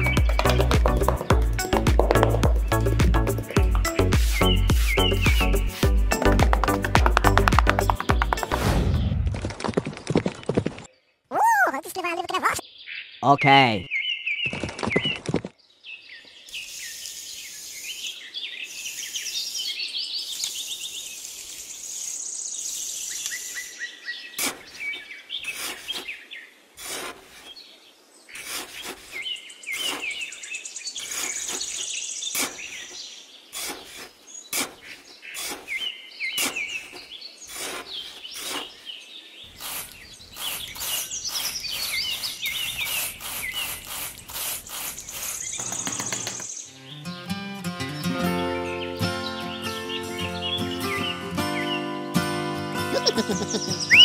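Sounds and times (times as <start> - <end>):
small birds chirping: 0.0 - 9.2, 9.8 - 52.2, 52.8 - 54.0
hand trowel scraping sand: 24.3 - 26.2, 26.8 - 27.7, 28.3 - 46.5.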